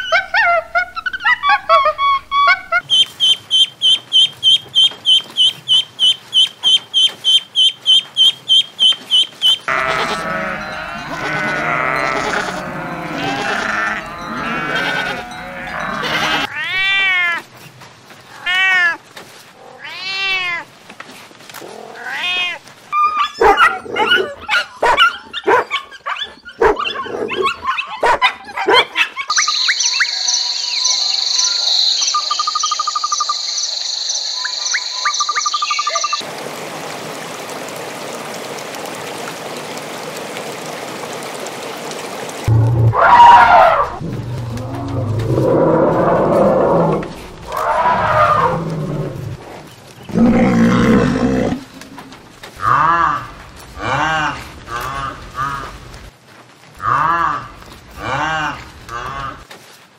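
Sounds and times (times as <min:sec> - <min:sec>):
ducklings peeping: 0:02.4 - 0:09.6
rising-and-falling animal cries: 0:09.7 - 0:17.4, 0:42.8 - 0:49.4.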